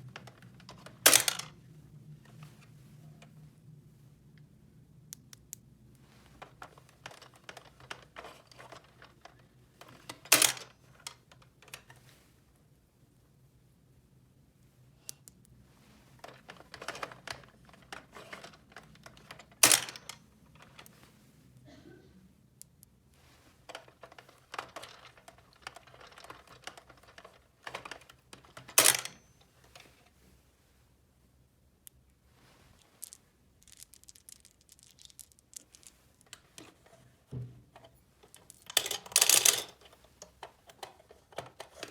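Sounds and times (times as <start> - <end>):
plastic toy pieces clicking: 0.1 - 1.5, 6.4 - 11.9, 16.2 - 20.8, 23.7 - 29.2, 33.0 - 36.8, 38.2 - 41.9.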